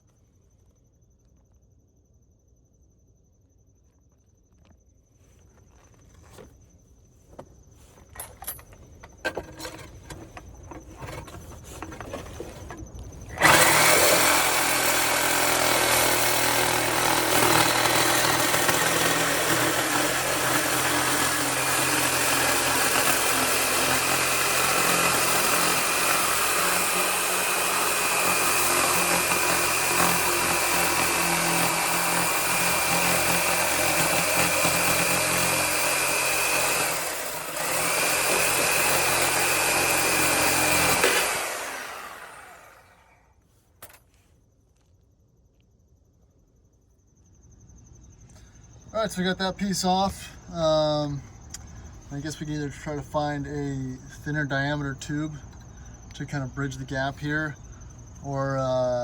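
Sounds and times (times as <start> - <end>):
reciprocating saw cutting steel: 13.3 - 43.2.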